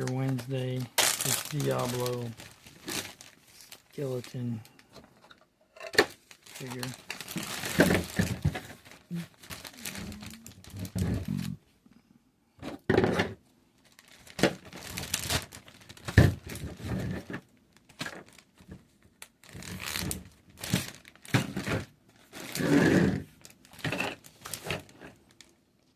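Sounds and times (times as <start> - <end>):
plastic and cardboard crinkling: 0.0 - 11.6, 13.8 - 25.9.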